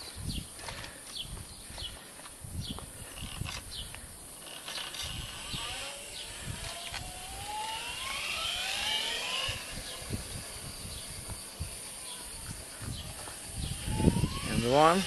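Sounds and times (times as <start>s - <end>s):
electric motor whine rising: 4.4s - 15.0s.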